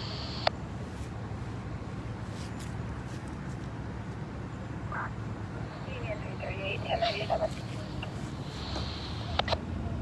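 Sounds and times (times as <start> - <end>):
low hum: 0.0 - 10.0
radio squelch click: 5.8 - 9.6.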